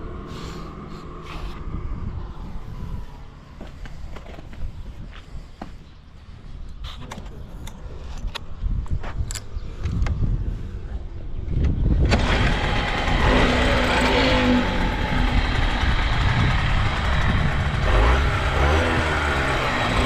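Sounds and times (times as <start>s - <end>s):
two-stroke engine starting and running: 11.9s - 20.0s.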